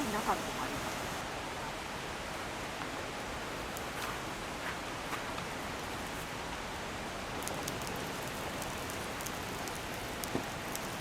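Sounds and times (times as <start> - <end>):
stream flowing over rocks: 0.0 - 11.0
faint clicks: 7.4 - 11.0.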